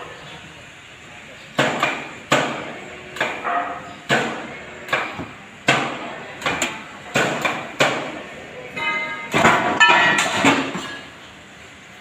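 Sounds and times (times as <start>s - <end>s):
hammer striking metal: 8.8s - 11.1s.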